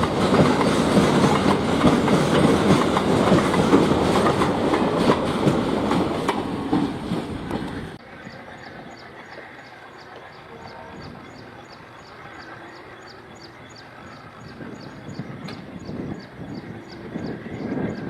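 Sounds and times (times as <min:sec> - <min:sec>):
wheels clacking over rail joints: 0:00.0 - 0:08.0
train wagons rattling past: 0:00.0 - 0:18.0.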